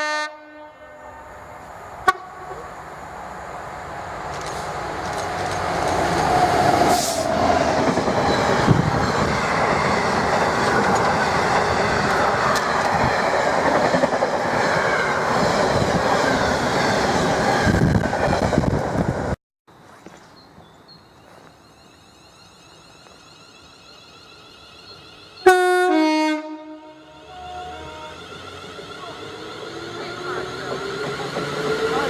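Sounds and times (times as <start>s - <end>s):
freight train wheels clattering: 4.2s - 16.5s.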